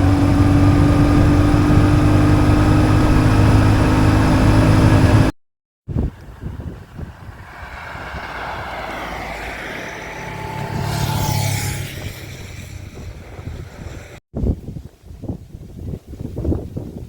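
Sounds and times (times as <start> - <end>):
motor vehicle passing by: 6.0 - 14.2.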